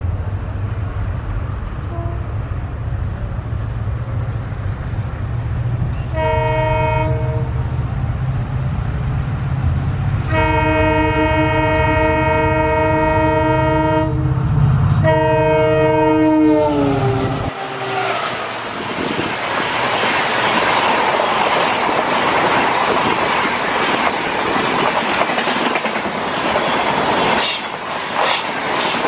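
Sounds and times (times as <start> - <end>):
train horn blasts: 1.9 - 2.4, 5.9 - 7.6, 10.2 - 18.6.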